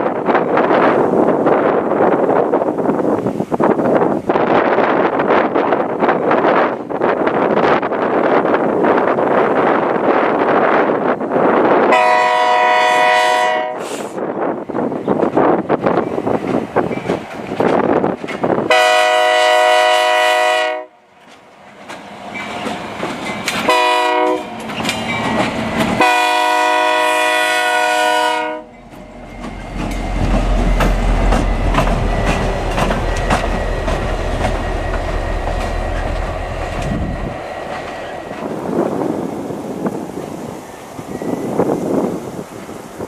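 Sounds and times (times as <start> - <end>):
locomotive horn blasts: 11.9 - 14.1, 18.7 - 21.0, 23.6 - 24.6, 26.0 - 28.8
wheels clickety-clack over rail joints: 14.6 - 18.9, 21.1 - 26.6, 28.7 - 43.0
locomotive engine rumble: 21.2 - 43.0.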